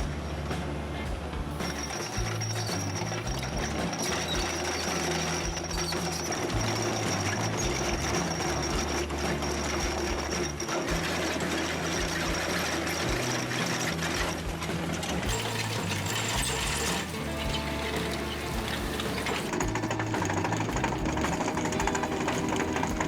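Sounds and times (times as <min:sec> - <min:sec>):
background music bass line: 0:00.0 - 0:23.0
machinery clattering: 0:00.0 - 0:23.0.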